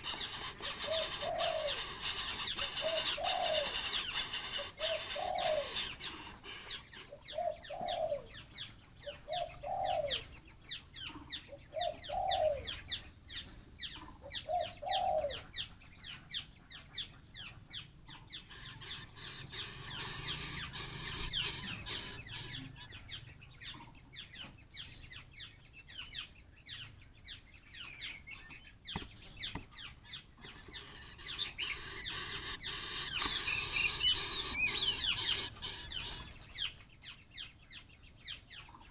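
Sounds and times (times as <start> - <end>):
bird rising and falling call: 0.0 - 6.1
high bird chirps and clicks: 0.0 - 6.2, 28.3 - 37.2.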